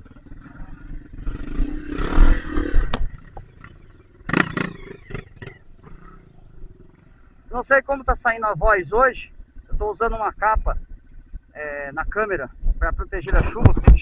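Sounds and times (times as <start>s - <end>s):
dirt bike engine revving: 0.0s - 12.6s.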